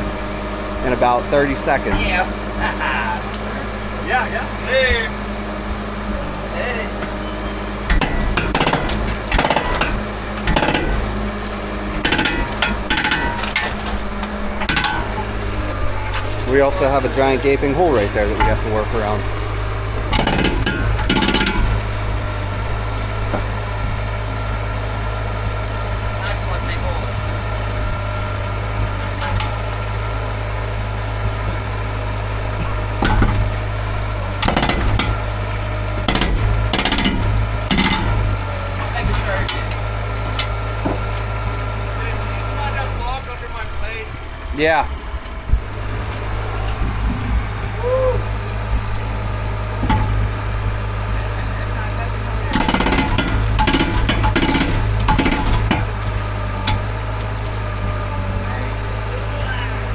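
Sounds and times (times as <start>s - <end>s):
engine running steadily: 0.0s - 59.9s
jackhammer hammering concrete: 7.8s - 22.6s, 32.6s - 39.8s, 52.2s - 57.0s.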